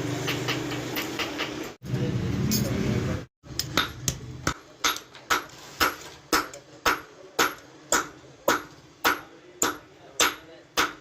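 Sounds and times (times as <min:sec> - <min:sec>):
hammer striking metal on anvil: 0:03.5 - 0:11.0.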